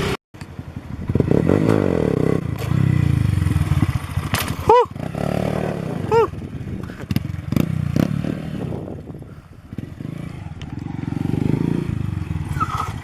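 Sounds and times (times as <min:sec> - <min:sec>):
small motorcycle engine revving: 0:01.0 - 0:13.0
rising and falling squeals: 0:12.4 - 0:13.0.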